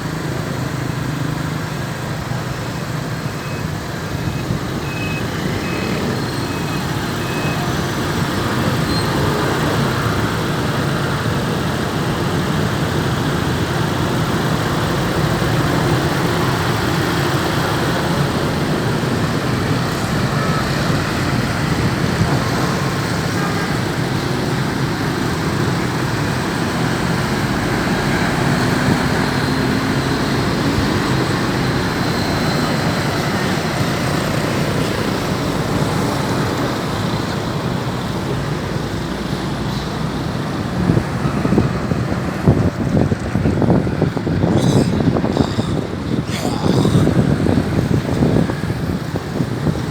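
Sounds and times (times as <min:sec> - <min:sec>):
truck engine and road noise: 0:00.0 - 0:49.9
reversing beeps: 0:04.3 - 0:07.8.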